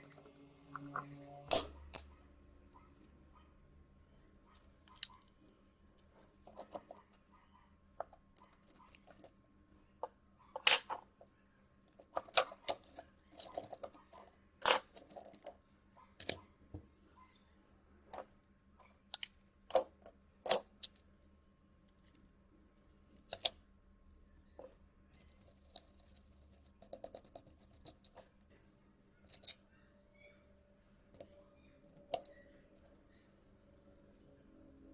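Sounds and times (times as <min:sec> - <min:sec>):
small tools clicking and tapping: 0:11.9 - 0:15.6, 0:16.2 - 0:16.5, 0:18.1 - 0:21.1, 0:24.6 - 0:28.3, 0:29.3 - 0:29.6, 0:32.0 - 0:32.4.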